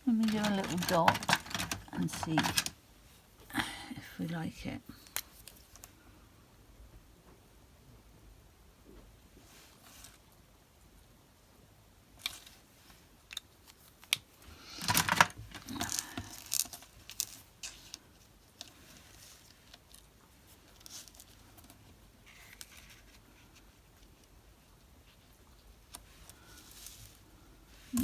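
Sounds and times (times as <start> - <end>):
rustling and scraping: 0.0 - 2.8, 13.6 - 28.0.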